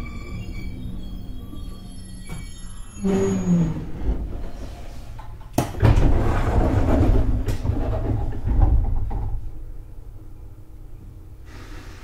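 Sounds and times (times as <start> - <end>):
train hum: 0.0 - 5.6
train rumbling clatter: 3.2 - 9.6.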